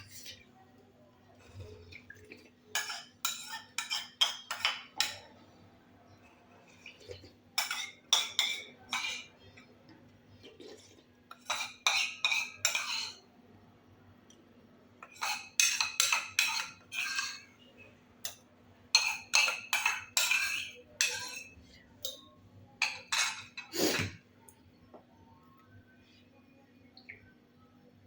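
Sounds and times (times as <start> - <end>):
utensils scraping and clinking plate: 1.4 - 9.7, 10.3 - 13.3, 15.0 - 24.2.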